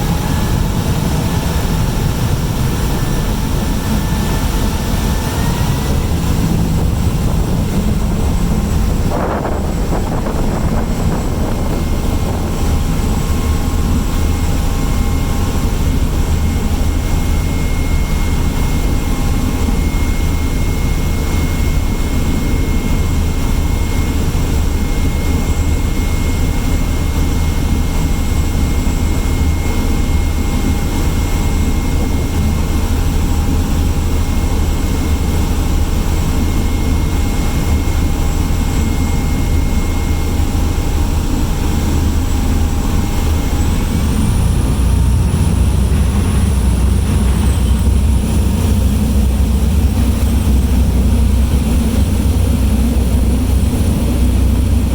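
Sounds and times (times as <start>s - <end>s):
ship engine rumble: 0.0s - 54.9s
thin engine whine: 0.0s - 54.9s.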